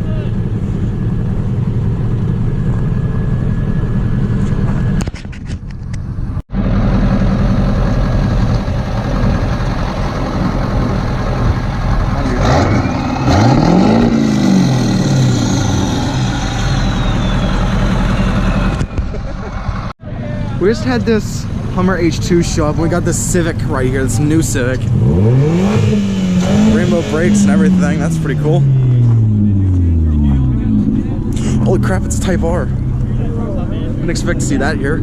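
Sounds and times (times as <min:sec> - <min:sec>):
car engines running: 0:00.0 - 0:35.0
engine revving: 0:06.5 - 0:19.0, 0:21.8 - 0:35.0.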